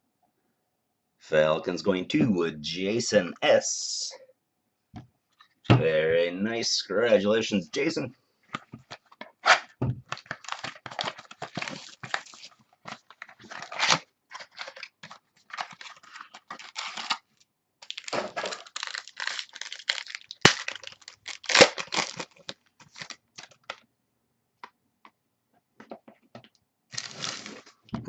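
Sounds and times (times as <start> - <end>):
cards being handled: 8.5 - 17.2
foil wrappers tearing and crinkling: 9.4 - 23.8, 26.9 - 27.7.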